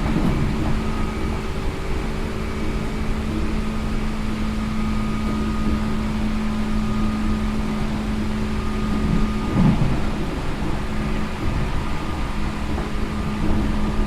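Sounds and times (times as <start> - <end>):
traction motor hum: 0.0 - 14.0
train wheels rumbling on rail: 0.0 - 14.0.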